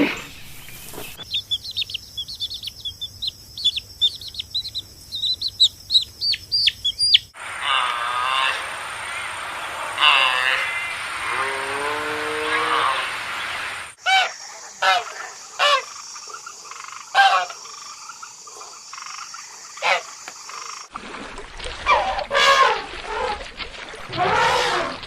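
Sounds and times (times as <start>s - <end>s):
downward sliding animal calls: 7.4s - 13.8s, 21.9s - 25.0s.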